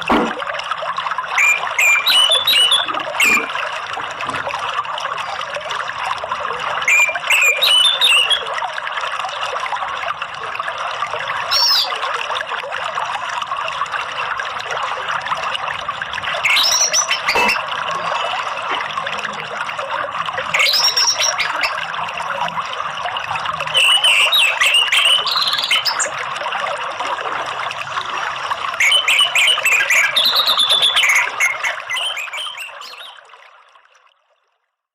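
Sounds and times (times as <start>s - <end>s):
running water: 0.0s - 34.5s
short bird chirps: 1.4s - 3.5s, 6.9s - 8.4s, 16.4s - 17.6s, 28.8s - 33.2s.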